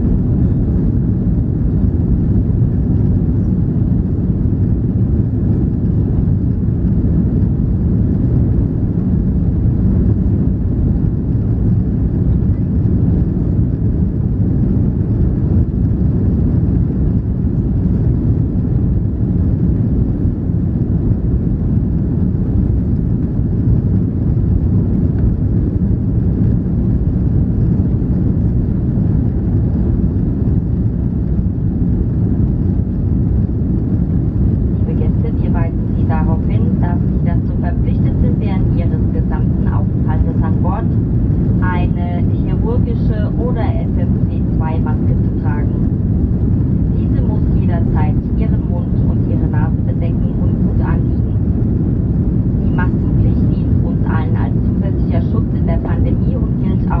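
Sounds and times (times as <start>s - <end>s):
airplane cabin low rumble: 0.0s - 57.0s.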